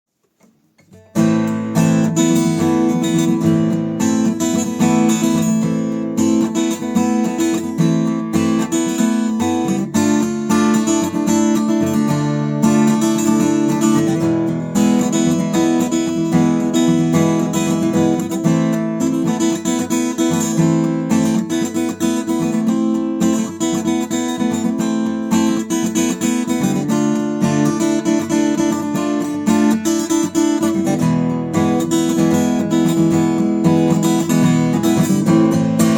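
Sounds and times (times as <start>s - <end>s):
acoustic guitar strumming chords: 0.3s - 35.9s.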